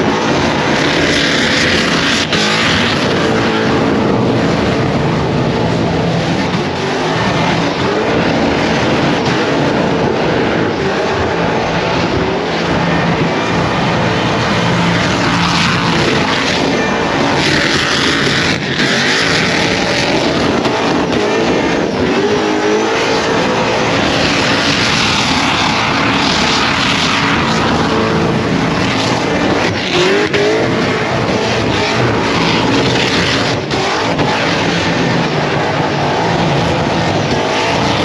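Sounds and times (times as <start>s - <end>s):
car engine revving: 0.0s - 38.0s.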